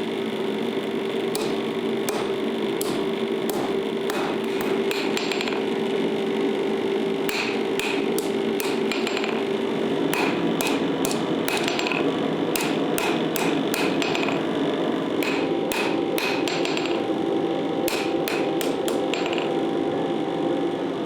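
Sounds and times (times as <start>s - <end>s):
hammer ringing on steel anvil: 1.3s - 5.8s, 7.3s - 14.6s, 15.2s - 17.2s, 17.9s - 19.7s.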